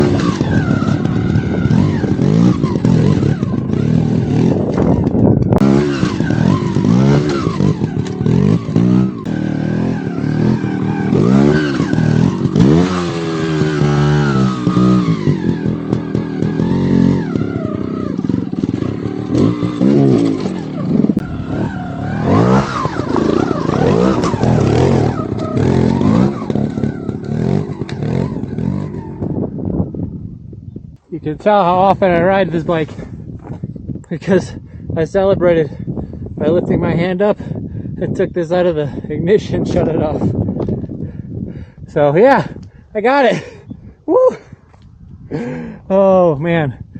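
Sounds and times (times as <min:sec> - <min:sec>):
motorcycle engine revving: 0:00.0 - 0:30.6, 0:38.8 - 0:43.6, 0:45.3 - 0:46.1.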